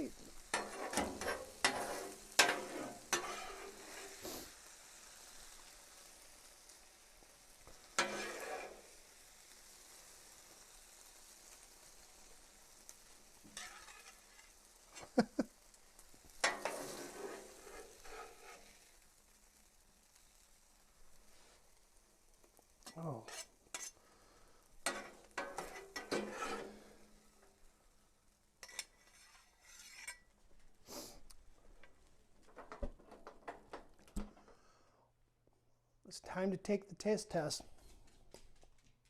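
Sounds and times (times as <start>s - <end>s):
faint sizzle: 0.0s - 35.4s
metal spatula scraping griddle: 0.3s - 4.5s, 7.7s - 9.0s, 13.4s - 15.2s, 16.4s - 19.0s, 22.9s - 24.0s, 24.8s - 27.6s, 28.6s - 30.3s.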